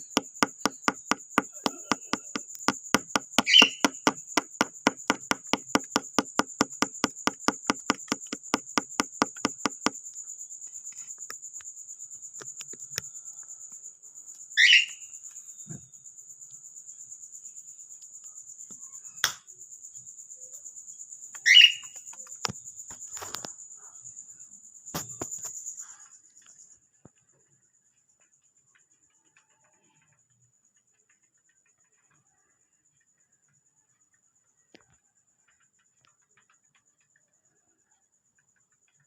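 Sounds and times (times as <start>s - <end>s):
fast even tapping: 0.0s - 10.0s.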